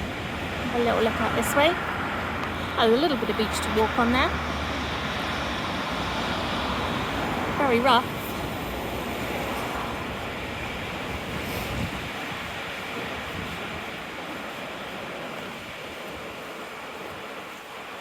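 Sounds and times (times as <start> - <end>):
wind rumbling on microphone: 0.0 - 18.0
surf breaking: 4.8 - 18.0.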